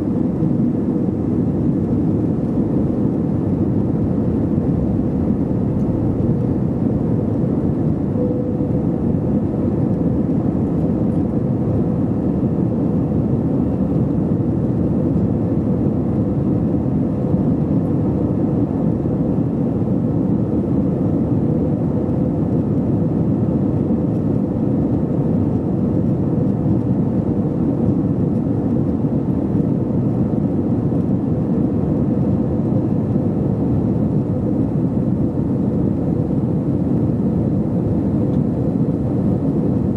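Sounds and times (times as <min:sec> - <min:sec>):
faint steady hum: 0:00.0 - 0:22.2
jet engine and airflow rumble: 0:00.0 - 0:39.9.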